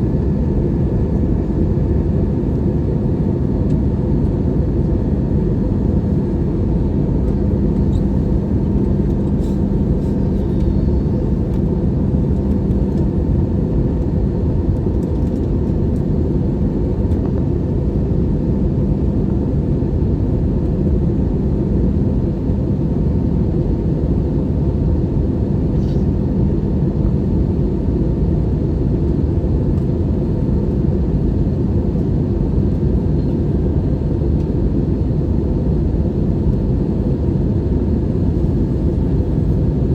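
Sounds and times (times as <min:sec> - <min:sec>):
aircraft cabin rumble: 0:00.0 - 0:39.9.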